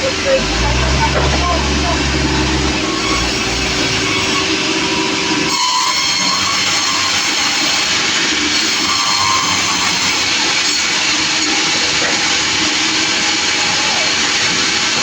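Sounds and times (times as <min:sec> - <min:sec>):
low rumble: 0:00.0 - 0:04.9
sawmill saw and engine running: 0:00.0 - 0:15.0.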